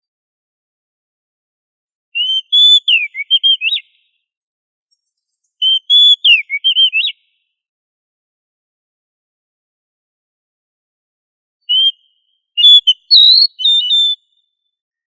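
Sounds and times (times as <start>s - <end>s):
bird singing whistled notes: 2.2s - 4.2s, 4.9s - 7.5s, 11.7s - 14.8s.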